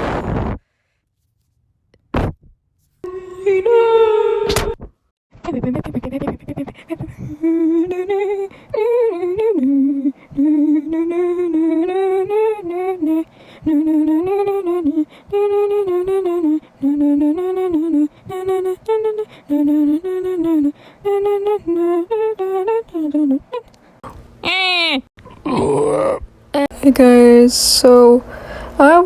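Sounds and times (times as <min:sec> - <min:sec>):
high voice humming: 0:03.0 - 0:04.8, 0:05.4 - 0:26.8.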